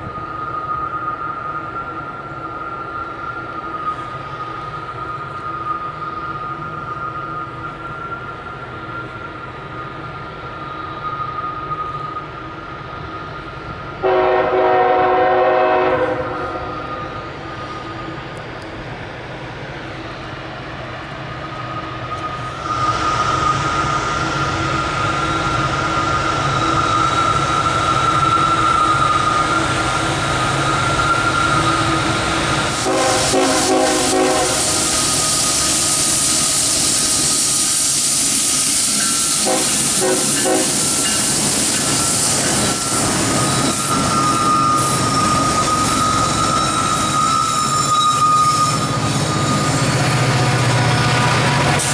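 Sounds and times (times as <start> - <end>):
freight train rumbling: 0.0 - 51.9
locomotive horn chord: 14.0 - 16.9, 32.8 - 34.9, 39.4 - 40.8.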